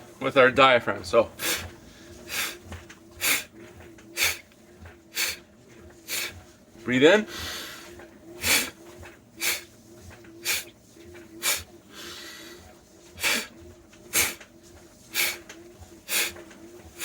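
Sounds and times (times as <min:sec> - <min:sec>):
person breathing in: 0:07.3 - 0:08.7
person puffing breath out: 0:13.2 - 0:13.5.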